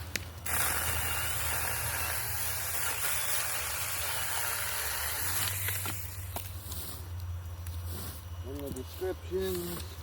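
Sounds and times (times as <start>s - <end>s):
chainsaw cutting branch: 0.0s - 7.0s.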